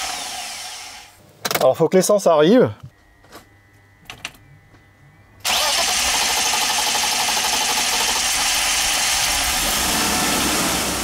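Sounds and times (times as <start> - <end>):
car engine starting and running: 5.4 - 11.0.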